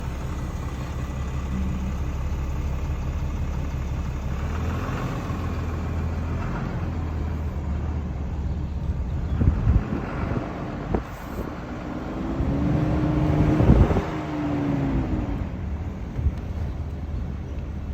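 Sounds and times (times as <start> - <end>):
pickup truck engine droning: 0.0 - 17.9.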